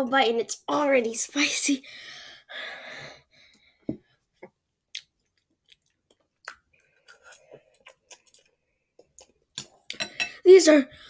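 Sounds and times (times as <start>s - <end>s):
person chewing noodles: 4.9s - 10.0s.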